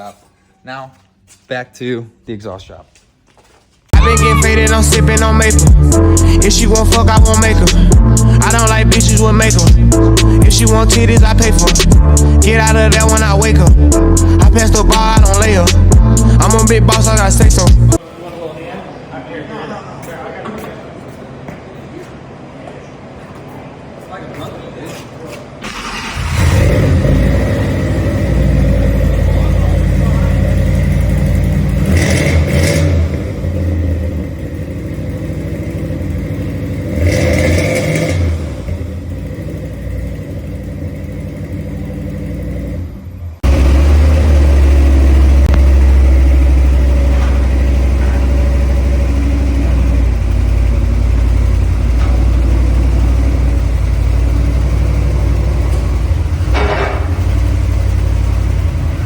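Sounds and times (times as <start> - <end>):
car exhaust running: 4.0 - 18.0, 26.2 - 59.0
deep exhaust note: 4.0 - 18.0, 25.8 - 37.4, 38.2 - 59.0.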